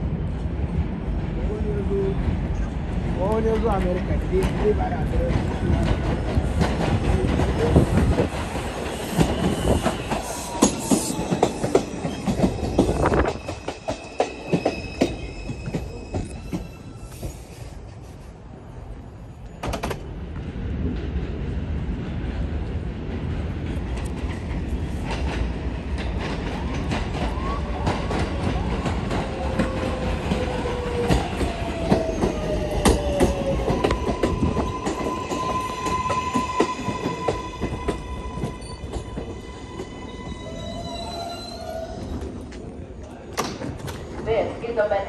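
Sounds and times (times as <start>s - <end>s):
approaching train rumble: 0.0s - 45.0s
train wheels clicking over rail joints: 3.2s - 17.4s.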